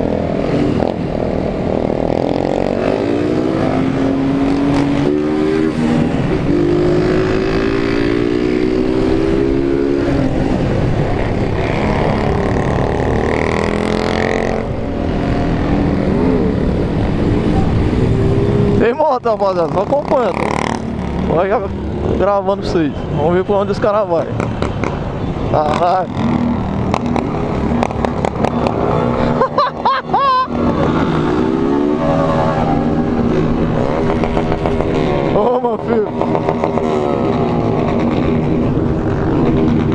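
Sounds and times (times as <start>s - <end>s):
motorcycle engines: 0.0s - 39.9s
wind and road rumble: 0.0s - 39.9s.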